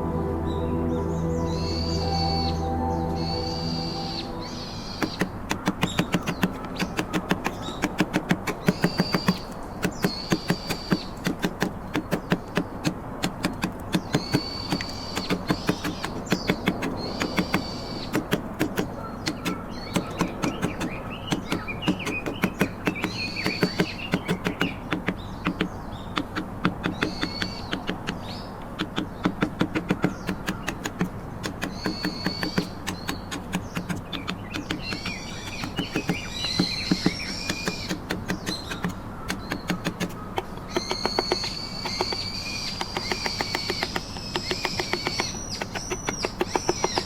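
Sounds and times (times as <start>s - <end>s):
birds chirping: 0.0s - 47.0s
mallet tapping chisel into wood: 5.0s - 47.0s.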